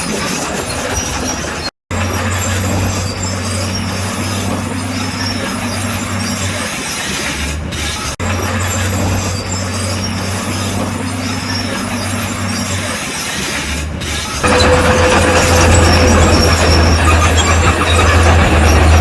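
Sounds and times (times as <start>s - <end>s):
steel tracks squealing and clattering: 0.0s - 19.0s
diesel engine drone: 1.9s - 6.6s, 7.6s - 13.0s, 13.9s - 19.0s.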